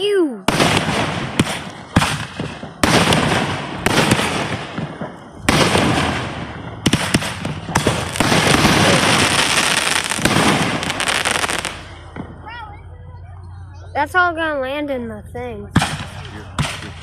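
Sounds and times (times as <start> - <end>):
fireworks crackling: 0.4 - 12.7, 15.7 - 17.0.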